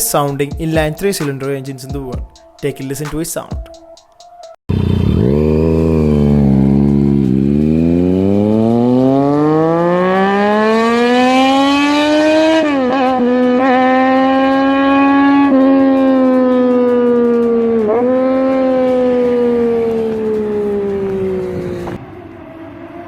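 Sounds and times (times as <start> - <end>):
motorcycle engine accelerating: 4.7 - 23.0.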